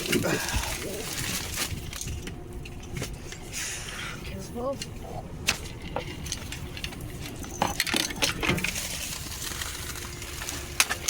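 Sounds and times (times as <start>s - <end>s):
gear clinking and knocking: 5.5s - 9.1s.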